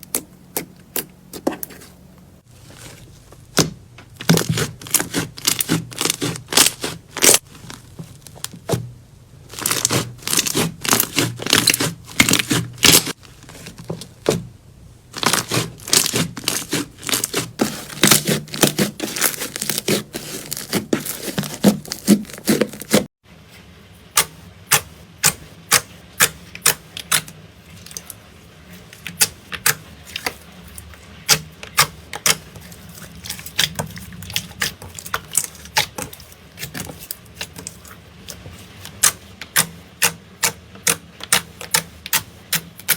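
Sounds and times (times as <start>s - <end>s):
slime crackling and popping: 3.4s - 8.6s, 9.5s - 13.8s, 15.2s - 23.0s.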